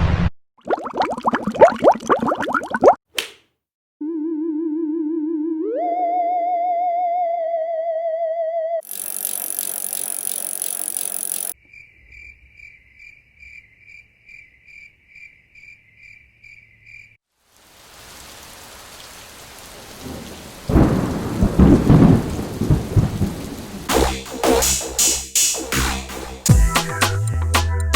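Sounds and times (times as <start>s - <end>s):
pulsing high tone: 8.8s - 11.6s
rain: 17.3s - 24.1s
rumbling thunder: 19.9s - 23.9s.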